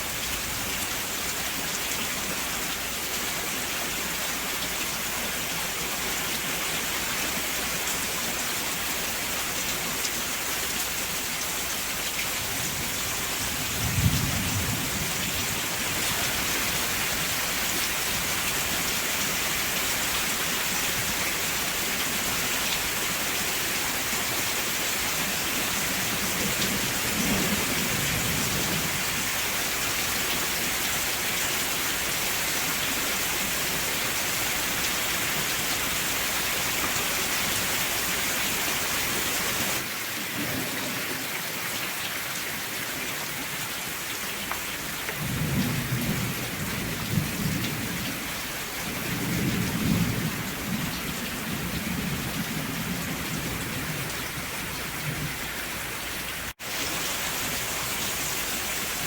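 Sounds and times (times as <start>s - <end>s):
steady rain falling: 0.0s - 59.0s
thunder rumbling: 13.4s - 15.5s, 45.2s - 55.4s.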